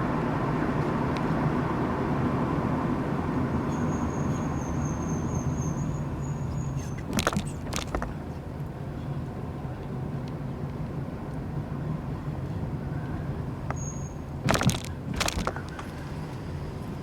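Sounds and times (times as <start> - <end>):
car road and engine rumble: 0.0 - 17.0
sharp clicks: 6.8 - 8.2, 14.5 - 15.8.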